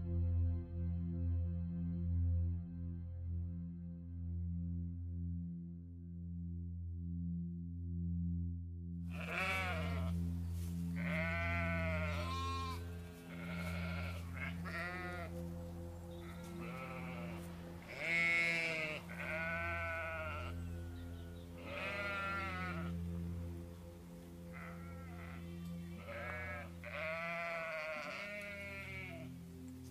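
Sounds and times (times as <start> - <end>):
background music drone: 0.0 - 29.9
sheep bleating: 9.1 - 10.2, 11.0 - 15.4, 16.2 - 22.9, 24.5 - 29.3.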